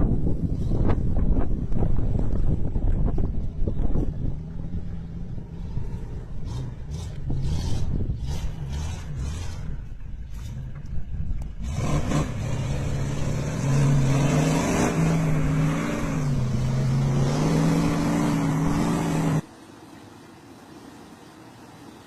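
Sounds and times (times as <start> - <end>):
vehicle engine revving: 3.9 - 19.4.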